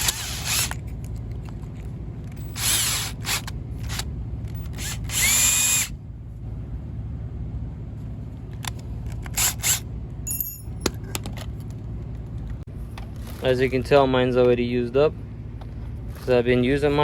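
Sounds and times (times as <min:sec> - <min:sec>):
cordless drill motor whirring: 0:00.0 - 0:00.8, 0:02.4 - 0:05.9, 0:09.2 - 0:09.8.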